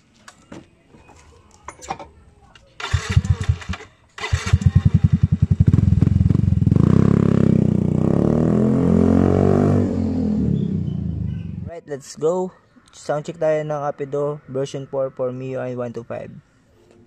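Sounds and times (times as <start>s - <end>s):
motorcycle engine revving: 2.8s - 11.7s.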